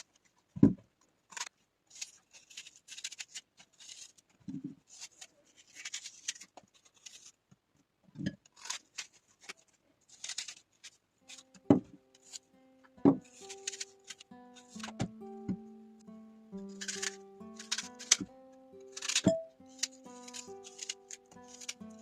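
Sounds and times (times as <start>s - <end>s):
scratchy rustling and scraping: 1.3s - 7.4s, 8.4s - 12.6s, 13.2s - 15.1s, 16.6s - 18.3s, 18.9s - 22.0s
music: 11.2s - 22.0s.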